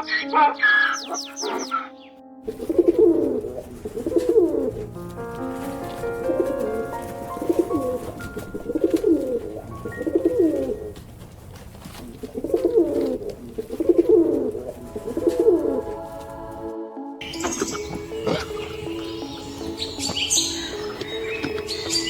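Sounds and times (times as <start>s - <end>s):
high-pitched bird chirping: 0.0s - 2.2s, 17.2s - 22.0s
background music: 0.0s - 13.2s, 13.8s - 22.0s
bird cooing: 0.6s - 5.0s, 5.6s - 22.0s.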